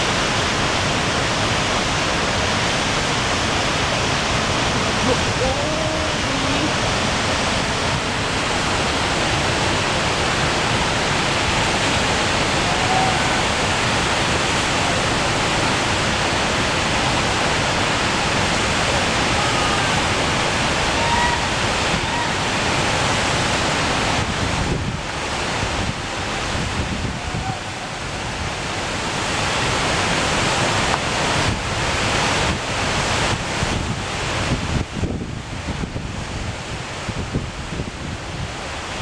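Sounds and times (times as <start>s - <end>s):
waterfall roar: 0.0s - 39.0s.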